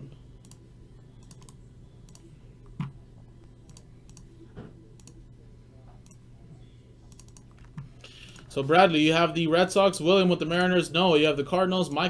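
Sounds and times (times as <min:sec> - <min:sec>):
low hum: 0:00.0 - 0:12.0
keyboard and mouse clicks: 0:01.2 - 0:03.0, 0:03.6 - 0:04.3, 0:07.1 - 0:07.9.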